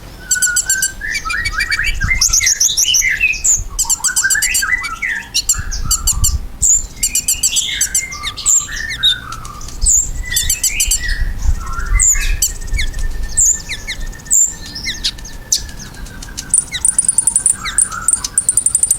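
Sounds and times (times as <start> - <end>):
sunbird chirping and trilling: 0.0 - 18.9.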